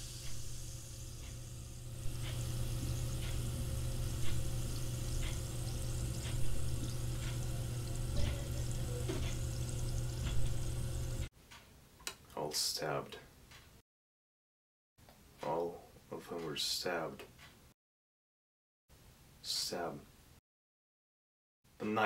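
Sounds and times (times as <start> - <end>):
steady low hum: 0.0 - 11.3
clock ticking: 0.2 - 11.6
drink fizzing in a glass: 2.1 - 11.3.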